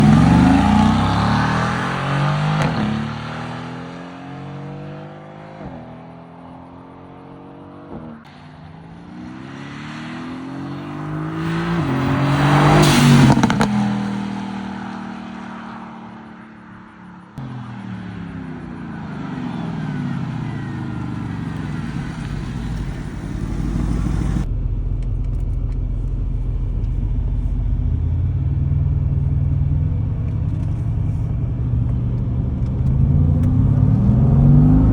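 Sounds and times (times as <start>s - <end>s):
car engine exhaust note: 0.0s - 3.5s, 18.6s - 34.9s
car passing: 0.0s - 24.5s, 27.4s - 34.9s.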